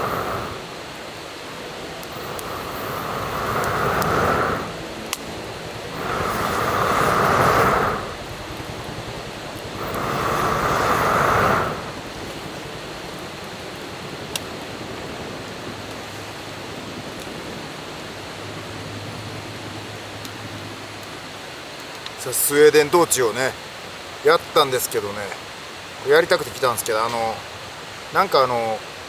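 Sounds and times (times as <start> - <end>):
person blowing on fire: 0.0 - 14.5
steady background rush: 0.0 - 21.1.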